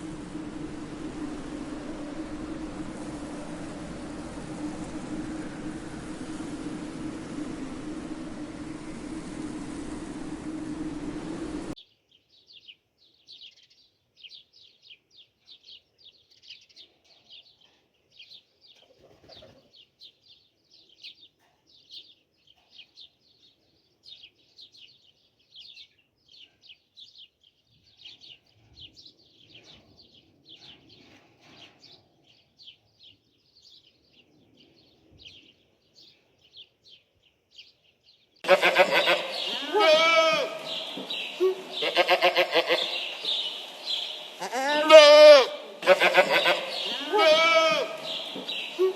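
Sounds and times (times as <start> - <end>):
loud rushing noise: 0.0 - 11.8, 38.4 - 48.9
small birds chirping: 0.0 - 48.9.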